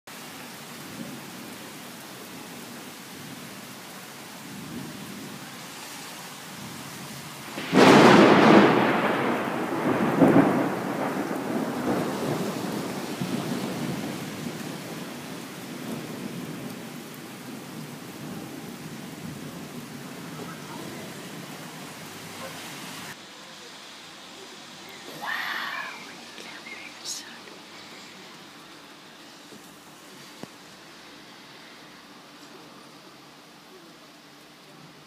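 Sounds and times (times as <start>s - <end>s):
steady rain: 0.1s - 35.0s
loud thunderclap: 7.5s - 14.6s.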